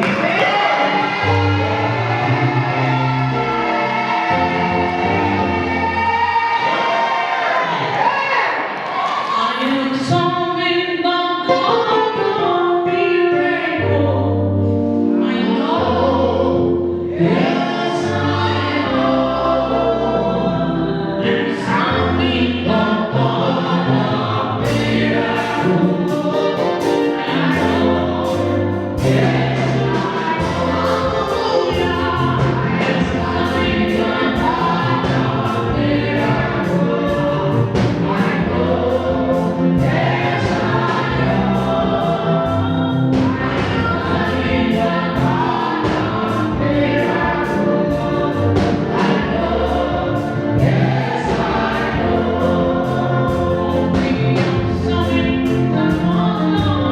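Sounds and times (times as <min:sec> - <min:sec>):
gospel choir singing: 0:00.0 - 0:56.9
sustained bass: 0:13.9 - 0:56.9
regular percussion: 0:24.7 - 0:56.8.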